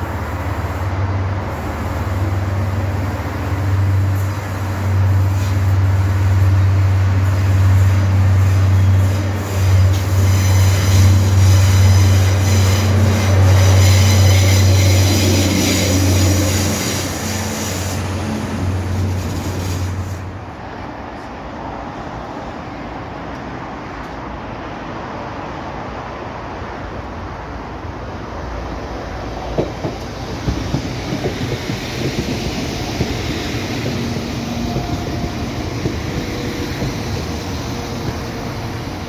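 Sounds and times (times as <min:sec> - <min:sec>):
train engine drone: 0:00.0 - 0:39.0
high wheel squeal: 0:09.0 - 0:18.2.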